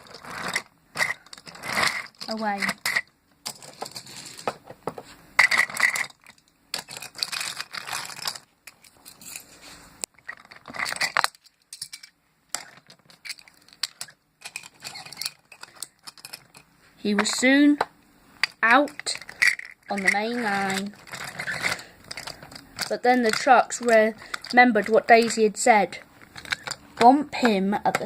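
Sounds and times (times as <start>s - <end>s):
toy train clattering on track: 18.4s - 25.7s, 26.3s - 28.0s.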